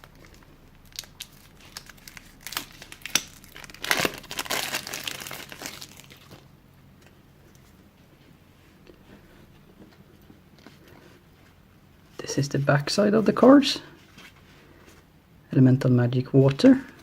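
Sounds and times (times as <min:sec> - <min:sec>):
plastic shrink-wrap tearing and crinkling: 0:00.0 - 0:06.4.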